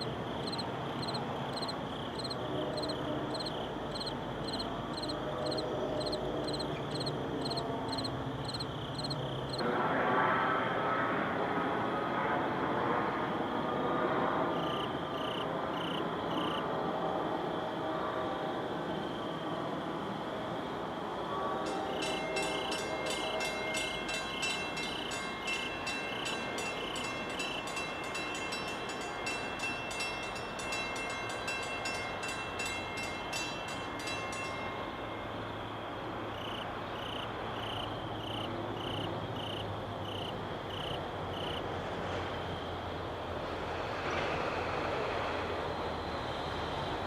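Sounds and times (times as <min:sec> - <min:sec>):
train rumble: 0:00.0 - 0:10.0, 0:21.3 - 0:47.0.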